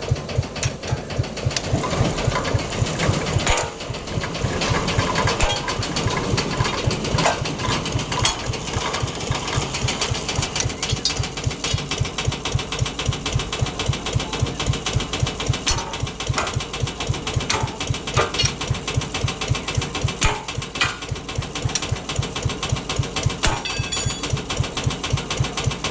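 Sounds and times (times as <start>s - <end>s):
sharp metallic clicks: 0.0s - 25.1s
small engine running: 0.0s - 25.9s.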